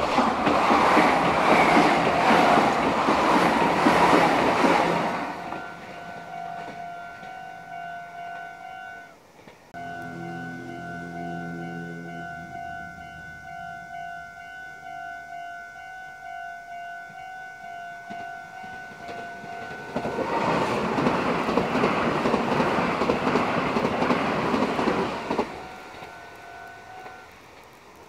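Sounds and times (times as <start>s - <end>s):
train wheels rushing on rails: 0.0s - 14.2s, 18.1s - 28.0s
level crossing bell ringing: 5.2s - 9.1s, 9.8s - 20.2s.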